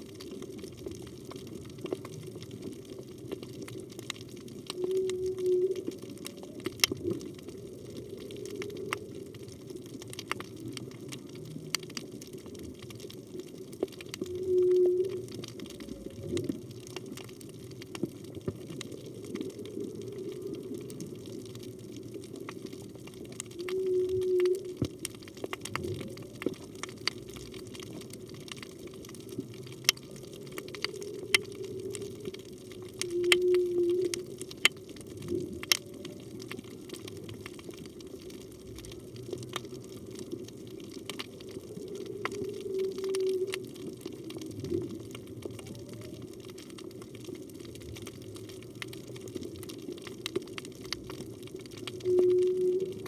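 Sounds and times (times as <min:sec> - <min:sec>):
underwater ambience: 0:00.0 - 0:53.0
whale singing low notes: 0:04.3 - 0:09.6, 0:14.0 - 0:16.9, 0:23.1 - 0:26.8, 0:29.3 - 0:37.4, 0:41.1 - 0:46.5, 0:51.6 - 0:53.0.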